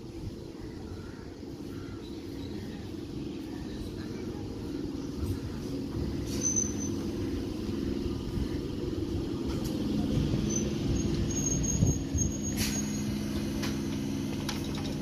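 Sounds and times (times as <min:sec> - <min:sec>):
train motors humming: 0:00.0 - 0:15.0
wheels rumbling on rails: 0:00.0 - 0:15.0
high wheel squeals: 0:06.2 - 0:07.2, 0:10.4 - 0:13.2.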